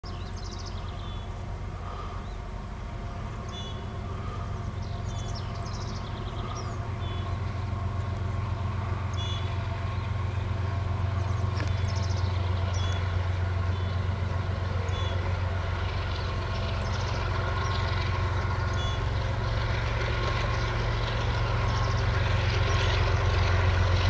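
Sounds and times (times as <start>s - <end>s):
diesel locomotive engine drone: 0.0s - 24.0s
small bird calling: 3.3s - 8.2s, 8.9s - 10.1s, 11.1s - 19.2s.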